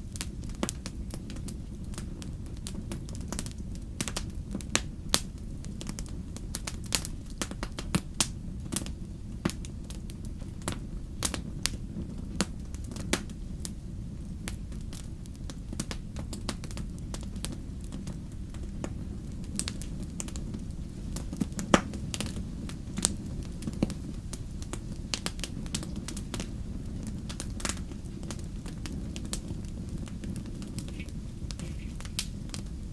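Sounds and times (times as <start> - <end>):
wood fire crackling: 0.0 - 32.9.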